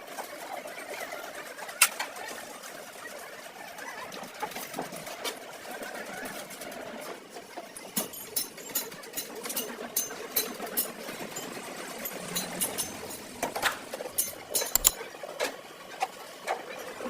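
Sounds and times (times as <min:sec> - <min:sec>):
steady background noise: 0:00.0 - 0:17.0
hand tools clicking on metal: 0:08.0 - 0:15.0.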